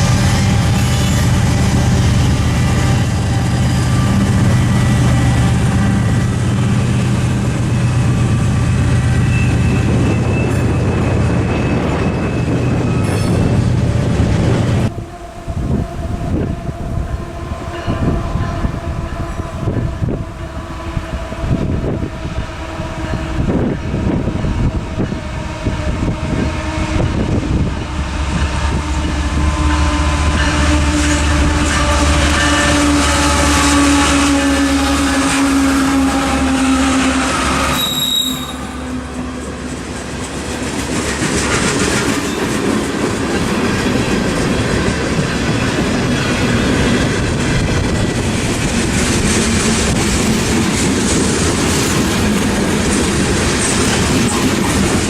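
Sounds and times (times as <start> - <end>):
locomotive engines rumbling: 0.0 - 55.0
train wheels clacking: 28.3 - 55.0.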